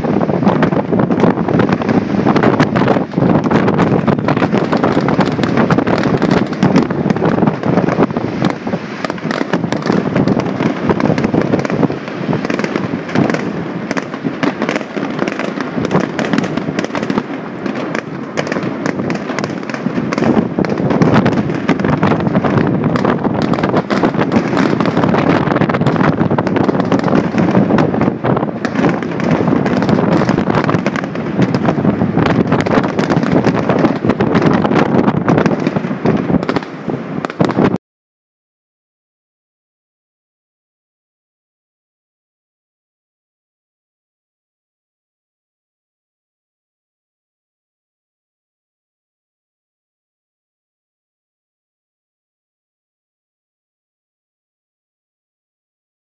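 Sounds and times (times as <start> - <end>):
fireworks bursting and crackling: 0.0 - 37.8.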